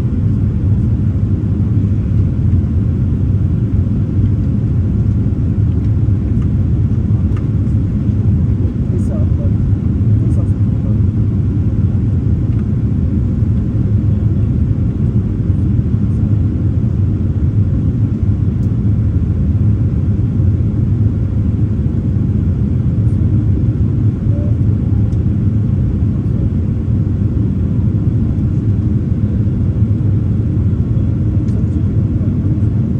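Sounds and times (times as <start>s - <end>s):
jet engines rumbling: 0.0s - 32.9s.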